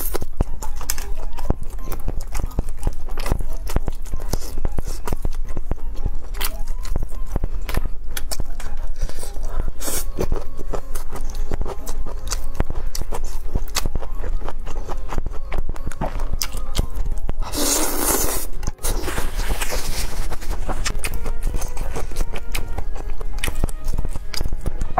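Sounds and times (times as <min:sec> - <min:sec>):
chewing crispy fried food: 0:00.0 - 0:24.9.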